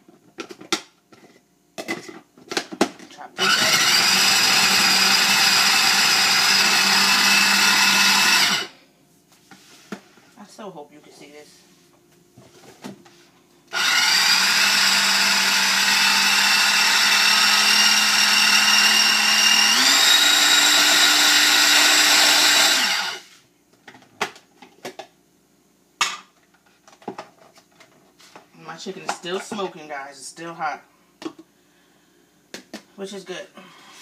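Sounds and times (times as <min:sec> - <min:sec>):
electric food chopper whining: 0:03.4 - 0:08.7, 0:13.7 - 0:23.2.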